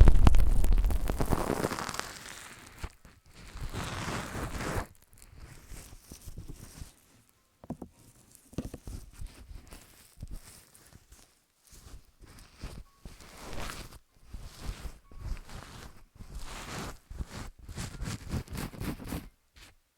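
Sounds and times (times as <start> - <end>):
fingers rubbing on microphone: 0.0 - 7.1, 7.8 - 19.8
small rustles: 0.0 - 19.8
soft taps: 7.6 - 9.0.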